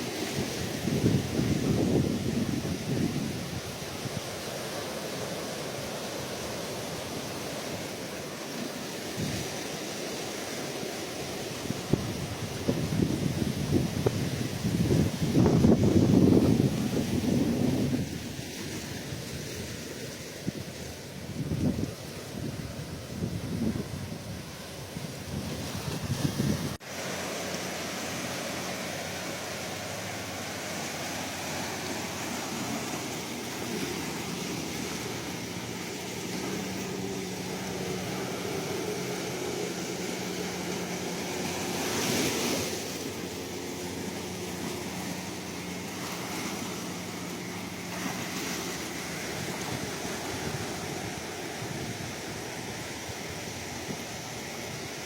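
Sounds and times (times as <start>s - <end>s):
surf washing: 0.0s - 55.0s.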